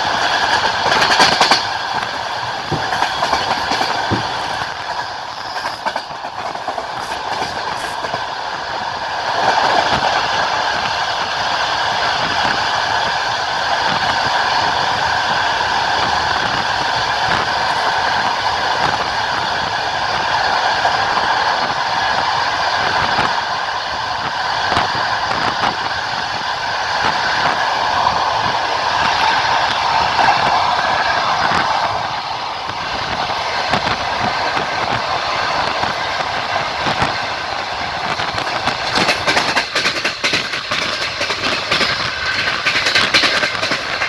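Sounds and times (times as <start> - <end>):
train wheels rolling on rails: 0.0 - 44.0
track clicks: 0.9 - 19.6.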